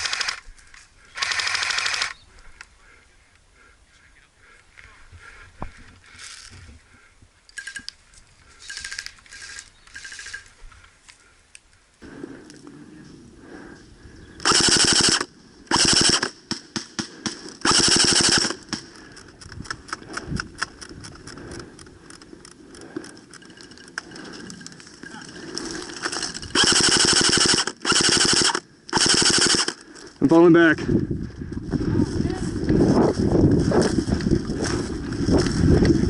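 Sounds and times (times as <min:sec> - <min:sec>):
airsoft guns firing bursts: 0:01.2 - 0:02.2, 0:14.4 - 0:18.9, 0:26.5 - 0:29.8.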